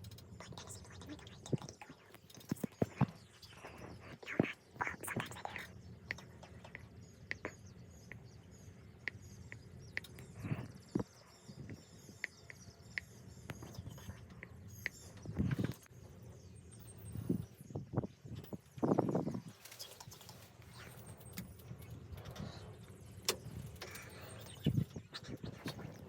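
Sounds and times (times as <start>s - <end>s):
songbirds chirping: 0.0s - 26.0s
soft clicks and rustles: 18.4s - 26.0s.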